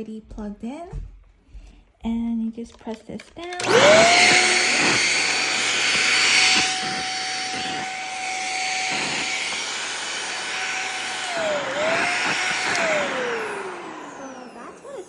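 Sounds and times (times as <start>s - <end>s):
vacuum motor whine: 3.5s - 15.0s.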